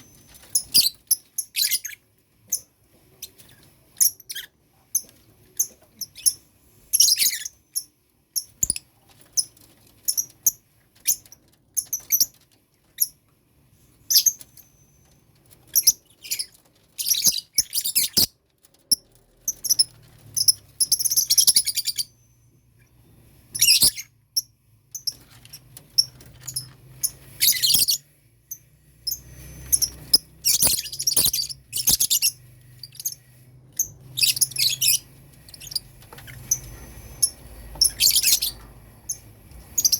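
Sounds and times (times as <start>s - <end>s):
lovebirds chirping: 14.0s - 18.3s, 18.9s - 39.9s.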